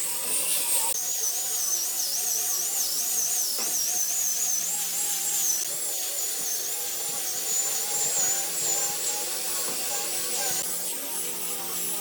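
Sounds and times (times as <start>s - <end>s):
electric power tool whining: 0.0s - 12.0s.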